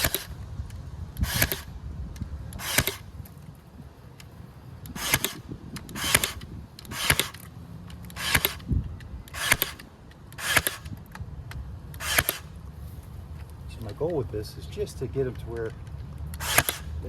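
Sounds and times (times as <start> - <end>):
staple gun firing: 0.0 - 0.4, 1.2 - 1.7, 2.6 - 3.0, 4.9 - 8.7, 9.3 - 11.2, 11.9 - 12.5, 16.3 - 17.0.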